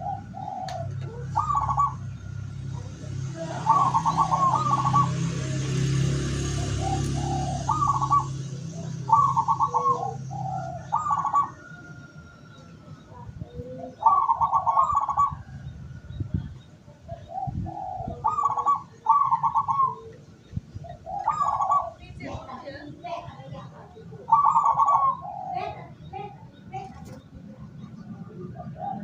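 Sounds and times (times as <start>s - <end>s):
dove cooing: 0.0s - 29.0s.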